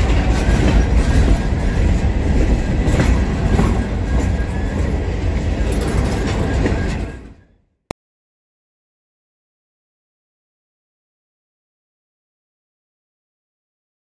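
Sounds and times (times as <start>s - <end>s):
freight train rumbling on rails: 0.0s - 7.6s
train wheel noise: 0.0s - 7.6s.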